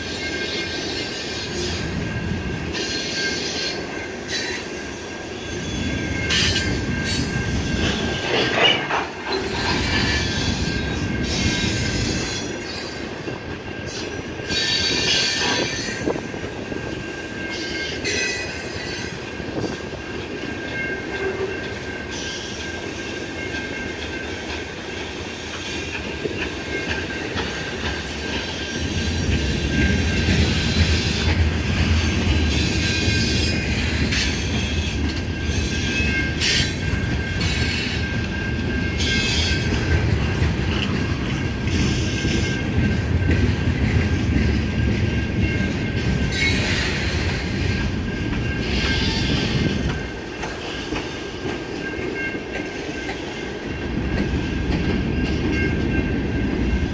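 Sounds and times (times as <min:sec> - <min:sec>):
high wheel squeal: 0:00.0 - 0:13.1, 0:45.4 - 0:49.9
train wheels rumbling on rail: 0:00.0 - 0:56.9
clatter over rail joints: 0:06.3 - 0:11.8.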